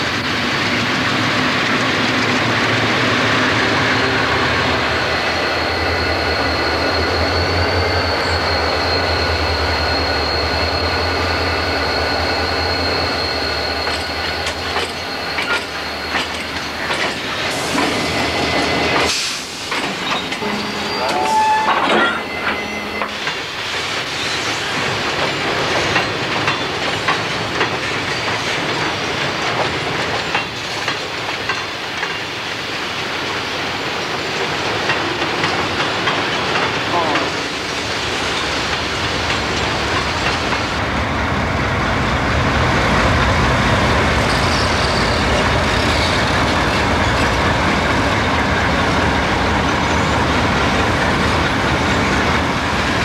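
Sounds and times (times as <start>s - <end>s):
wheel squeal: 5.0s - 24.8s, 44.1s - 47.7s
freight cars clanking: 13.8s - 23.5s
thin high whine: 20.4s - 23.4s.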